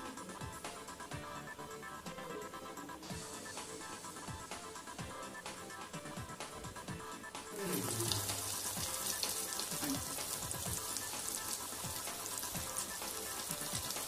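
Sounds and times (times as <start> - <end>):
music: 0.0 - 14.0
fritters sizzling in hot oil: 7.5 - 14.0.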